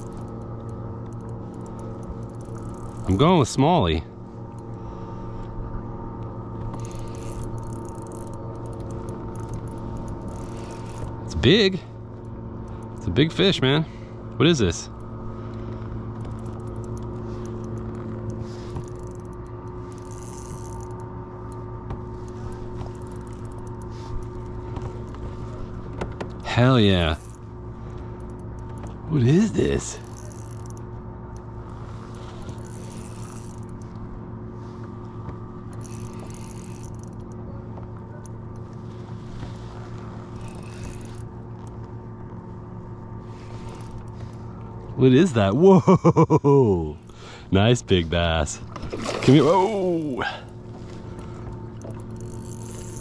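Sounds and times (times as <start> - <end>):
light clicks and rattles: 0.0 - 3.6, 6.2 - 13.5, 14.3 - 34.1, 34.8 - 42.4
motor hum: 0.0 - 53.0.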